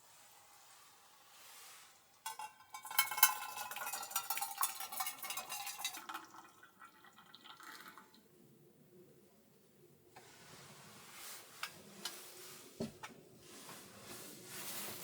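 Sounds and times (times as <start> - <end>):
metal kitchenware clinking and rattling: 2.3 - 6.4.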